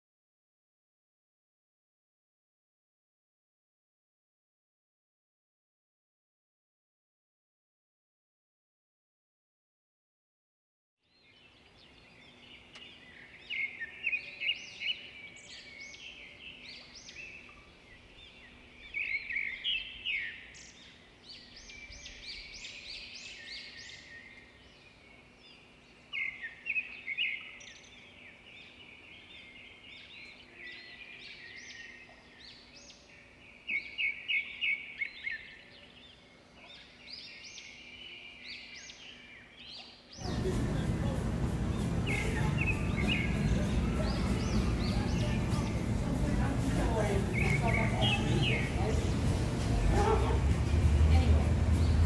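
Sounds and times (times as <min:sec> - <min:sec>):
small birds chirping: 0:11.0 - 0:52.0
faint low hum: 0:40.2 - 0:52.0.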